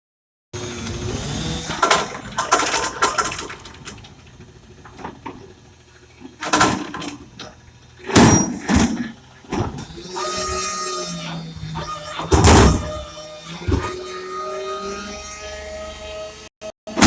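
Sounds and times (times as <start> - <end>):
truck engine running: 0.6 - 13.8
metal bangs and clatters: 8.0 - 10.8, 11.8 - 13.1.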